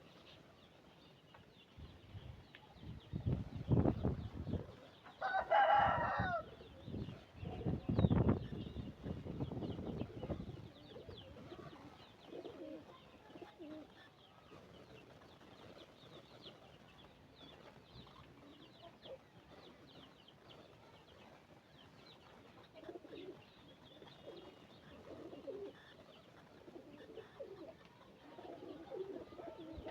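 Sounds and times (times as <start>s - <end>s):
small birds chirping faintly: 0.0s - 29.9s
pigeons cooing: 3.7s - 29.9s
rooster crowing: 5.2s - 6.5s.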